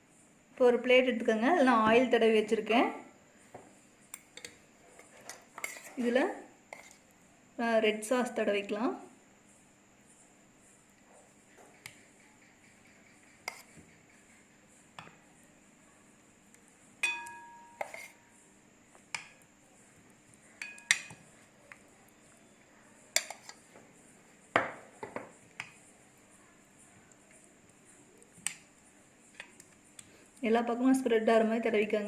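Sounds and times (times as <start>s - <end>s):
spoon clinking on a plate: 17.0s - 18.3s, 20.6s - 21.2s, 23.1s - 23.6s.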